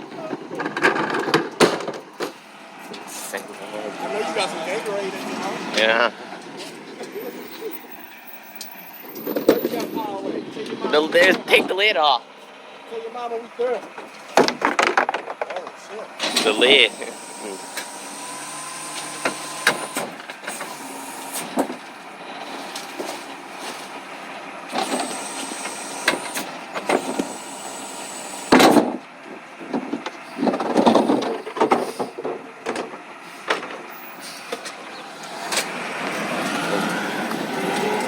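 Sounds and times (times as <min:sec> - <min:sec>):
recycling truck machinery: 0:00.0 - 0:38.0
dense clattering: 0:00.1 - 0:02.4, 0:13.6 - 0:16.6
metal clanks and knocks: 0:00.1 - 0:03.1, 0:13.8 - 0:16.6, 0:28.5 - 0:33.9.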